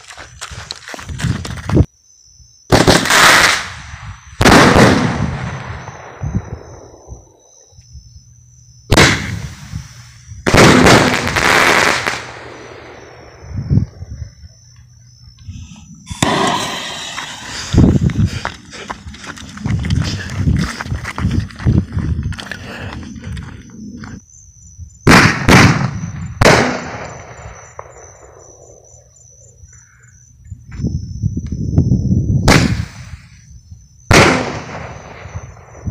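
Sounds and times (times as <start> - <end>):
firework bang: 2.7 - 3.8, 4.4 - 6.7, 8.9 - 9.8, 10.5 - 12.5, 16.1 - 17.6, 25.0 - 28.1, 32.4 - 33.2, 34.1 - 35.4
fireworks crackling: 8.9 - 12.5, 16.1 - 20.1.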